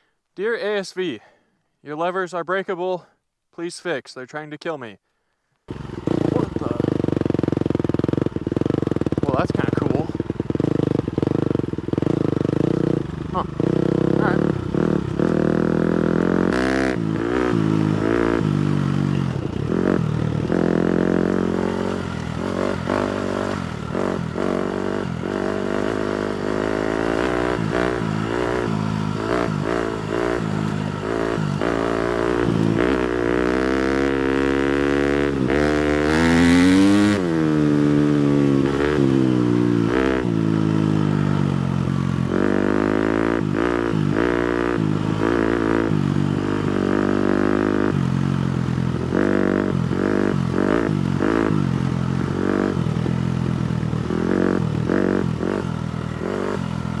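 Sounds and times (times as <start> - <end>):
motocross bike engine revving: 5.7 - 57.0
bike rattling over rough ground: 17.0 - 33.9.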